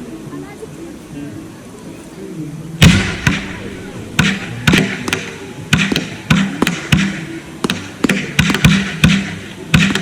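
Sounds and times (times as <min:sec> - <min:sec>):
fireworks bangs: 0:02.8 - 0:06.2.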